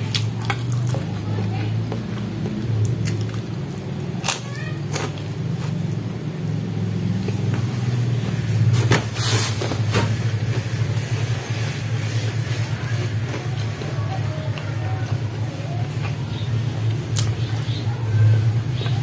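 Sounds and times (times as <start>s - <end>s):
man chewing with mouth open: 0.0s - 6.2s, 10.3s - 17.9s.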